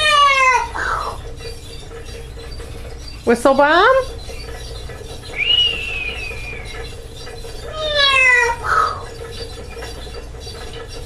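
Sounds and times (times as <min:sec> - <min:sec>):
thin high whistle: 0:05.3 - 0:06.8.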